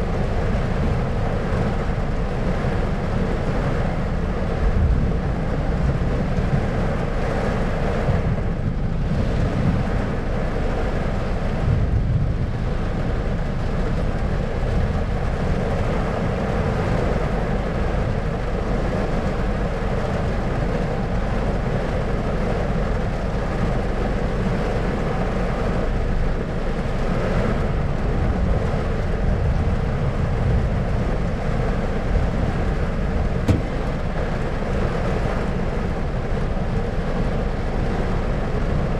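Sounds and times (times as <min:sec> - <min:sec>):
thunder rumbling: 0:27.8 - 0:34.8.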